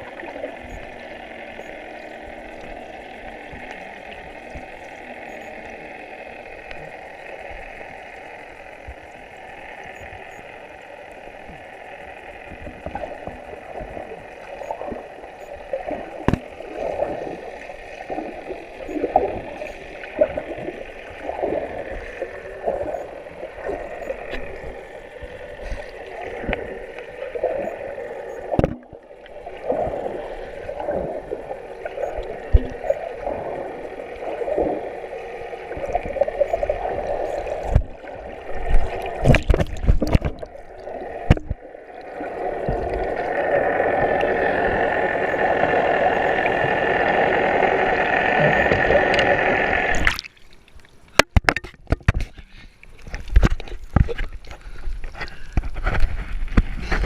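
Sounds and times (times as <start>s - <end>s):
boat motor running: 0.0s - 50.2s
water rushing past hull: 11.4s - 51.6s.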